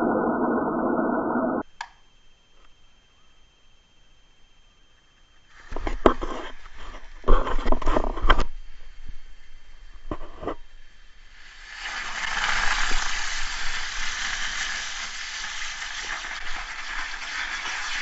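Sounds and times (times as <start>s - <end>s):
firework hissing: 11.3s - 18.0s.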